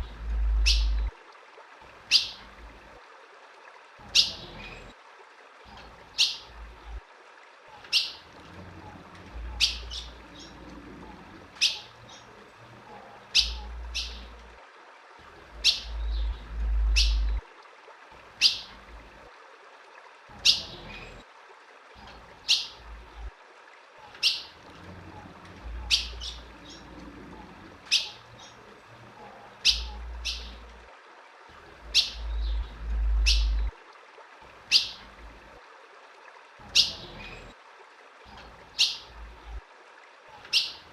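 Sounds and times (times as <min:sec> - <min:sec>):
bird chip calls: 0:00.0 - 0:01.1, 0:13.3 - 0:14.4, 0:15.6 - 0:17.4, 0:18.4 - 0:18.7, 0:24.0 - 0:24.6, 0:25.8 - 0:26.9, 0:27.9 - 0:28.6, 0:29.6 - 0:30.6, 0:31.9 - 0:33.7, 0:34.7 - 0:35.0, 0:36.7 - 0:37.5, 0:40.4 - 0:40.8
low rumbles: 0:00.0 - 0:01.2, 0:15.4 - 0:17.4, 0:31.8 - 0:33.8.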